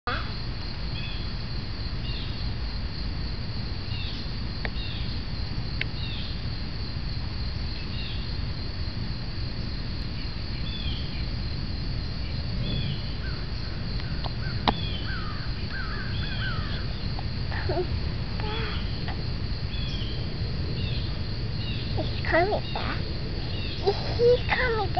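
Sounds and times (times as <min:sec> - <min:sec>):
steady low rumble: 0:00.4 - 0:24.9
birds chirping: 0:12.3 - 0:24.9.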